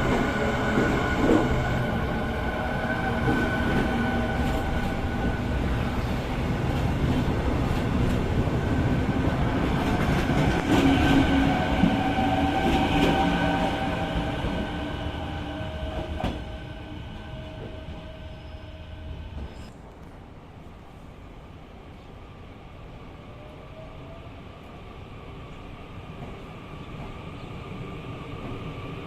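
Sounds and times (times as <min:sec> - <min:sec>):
train wheels rumbling on track: 0:00.0 - 0:20.2.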